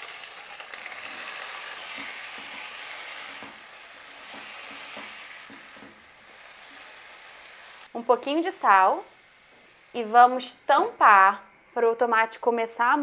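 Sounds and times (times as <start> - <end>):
tomatoes sizzling in oil: 0.0 - 11.1
spatula scraping a pan: 0.2 - 7.9.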